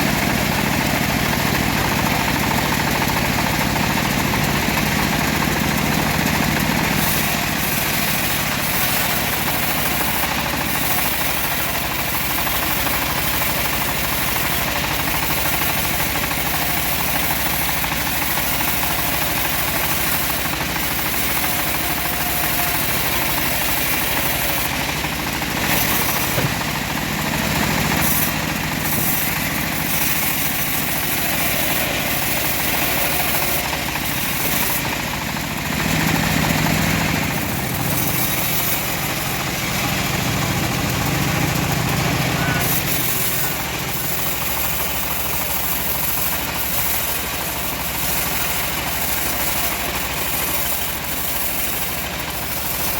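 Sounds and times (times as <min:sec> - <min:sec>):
bandsaw blade sawing log: 0:00.0 - 0:52.9
sawmill engine running: 0:00.0 - 0:52.9.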